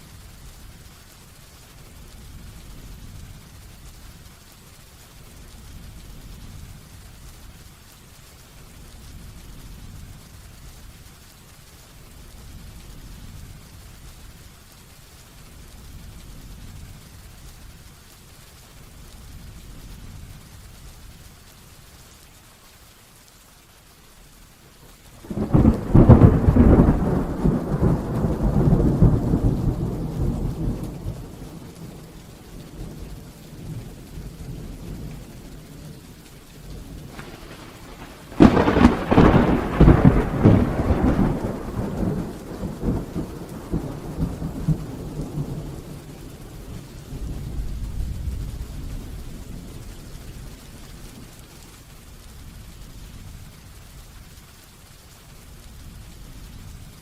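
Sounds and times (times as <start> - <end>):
heavy rain falling: 0.0 - 57.0
thunder claps rumbling: 25.2 - 51.6.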